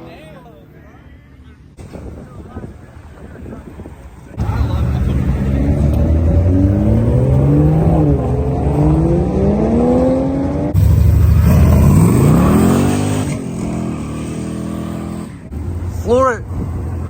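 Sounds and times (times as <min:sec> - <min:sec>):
car engine accelerating hard: 0:04.4 - 0:17.0
second engine revving: 0:04.4 - 0:17.0.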